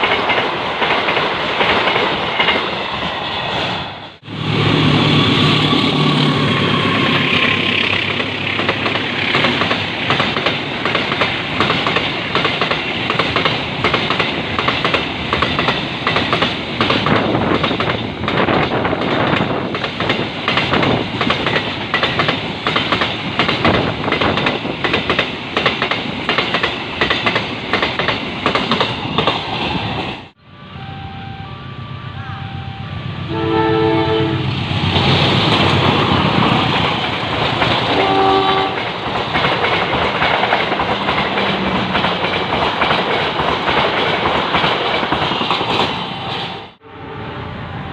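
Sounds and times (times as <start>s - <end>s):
train rumble: 0.0s - 47.9s
train wheels clacking over rail joints: 7.2s - 30.2s, 34.8s - 46.6s.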